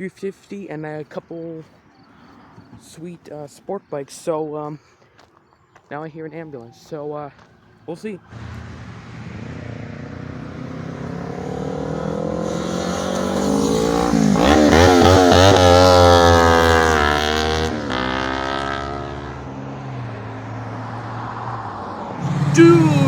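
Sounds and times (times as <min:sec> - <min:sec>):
car engine accelerating past: 0:08.3 - 0:23.0.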